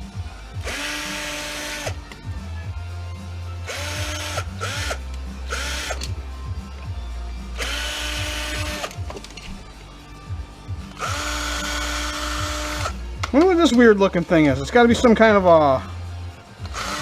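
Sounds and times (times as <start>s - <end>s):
power drill motor whine: 0.6s - 2.0s, 3.7s - 6.1s, 7.6s - 8.9s, 11.0s - 13.0s, 16.6s - 17.0s.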